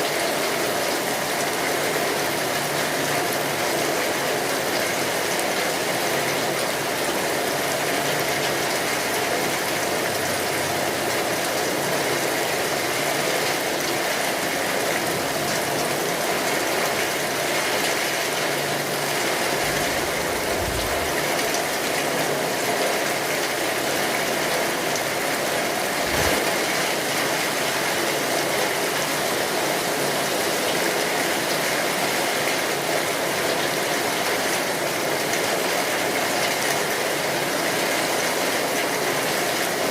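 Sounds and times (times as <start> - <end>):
steady rainfall: 0.0 - 39.9
low thumps: 19.5 - 22.0.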